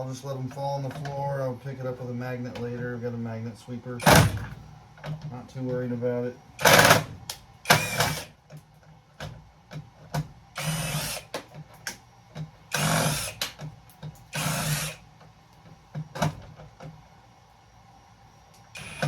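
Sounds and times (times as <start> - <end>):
power drill backing out screws: 4.0 - 4.6, 6.6 - 7.1, 7.7 - 8.3, 12.7 - 13.4, 14.3 - 15.0, 18.8 - 19.0.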